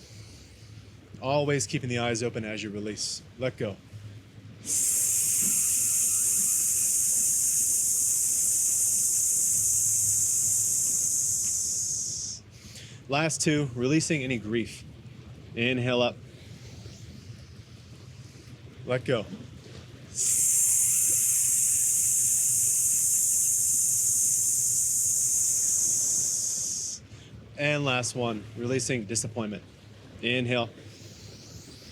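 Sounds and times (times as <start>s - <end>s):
person hissing exhale through teeth: 4.6s - 13.0s, 20.2s - 27.1s.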